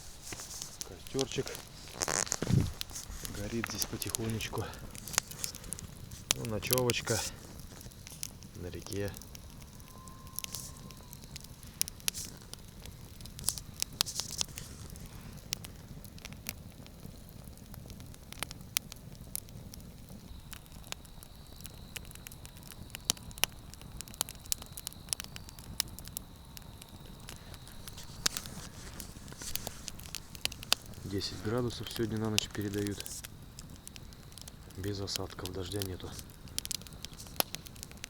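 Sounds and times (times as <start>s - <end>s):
campfire crackling and popping: 0.0s - 38.0s
low steady hiss: 0.0s - 38.0s.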